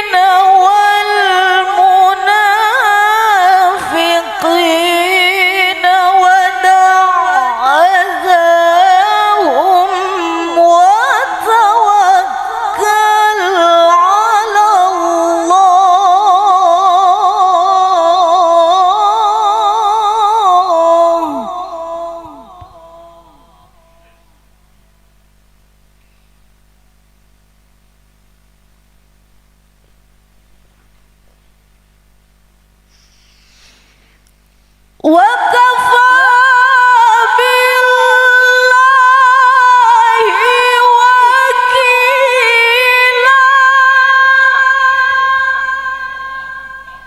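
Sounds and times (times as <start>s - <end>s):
woman reciting melodically: 0.0s - 24.5s, 35.0s - 47.0s.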